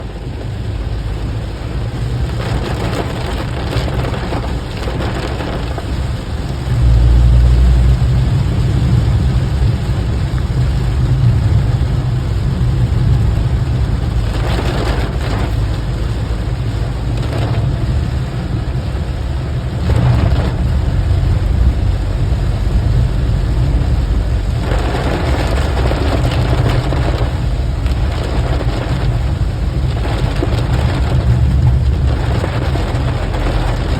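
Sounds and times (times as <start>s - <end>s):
car road rumble: 0.0s - 33.9s
rain hissing: 0.0s - 33.9s.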